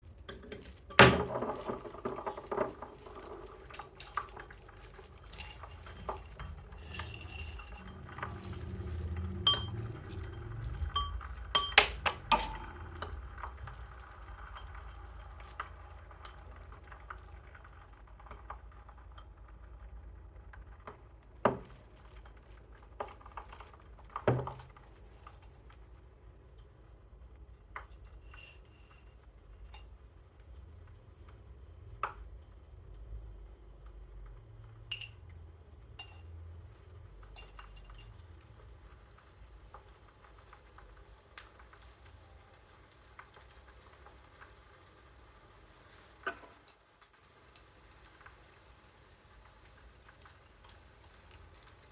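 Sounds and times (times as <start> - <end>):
oil crackling: 0.0 - 26.2
metal ball knocking on dish: 11.0 - 13.2.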